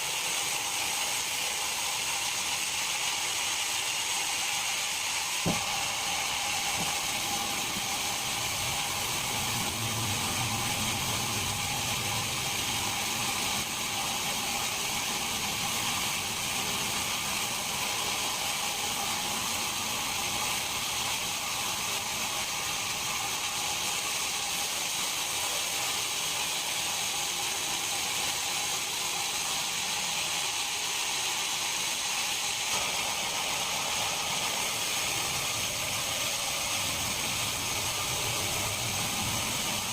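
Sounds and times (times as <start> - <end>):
machinery hissing: 0.0 - 39.9
high whining tones: 5.5 - 17.1.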